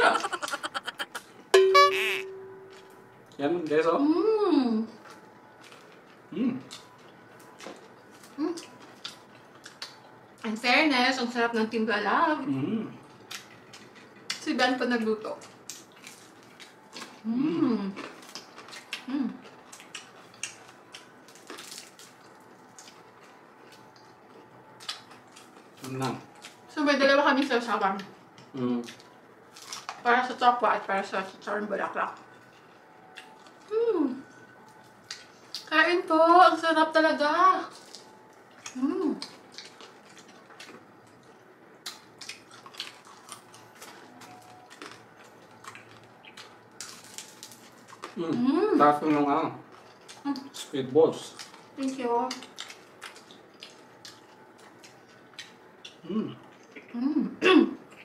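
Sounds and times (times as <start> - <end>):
person humming: 0.0 - 2.3
crunchy chewing: 15.4 - 17.3, 17.9 - 26.7, 28.0 - 30.0, 37.7 - 48.4, 49.0 - 57.0.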